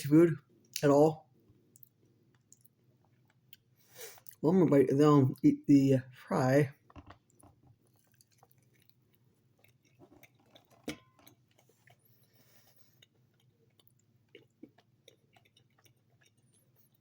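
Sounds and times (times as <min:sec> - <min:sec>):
chewing chicken wing: 0:01.5 - 0:04.4, 0:06.7 - 0:17.0.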